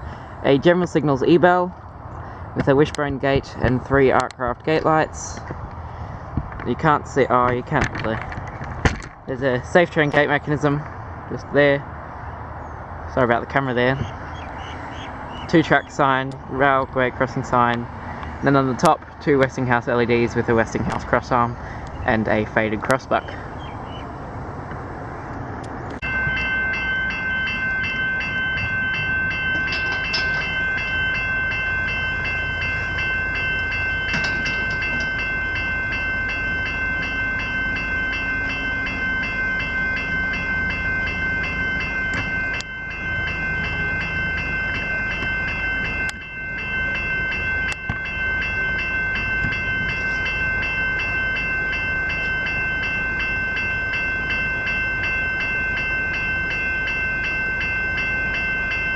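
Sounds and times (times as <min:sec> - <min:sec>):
level crossing bells clanging: 0:09.3 - 0:11.9, 0:13.1 - 0:23.6, 0:25.9 - 0:58.9.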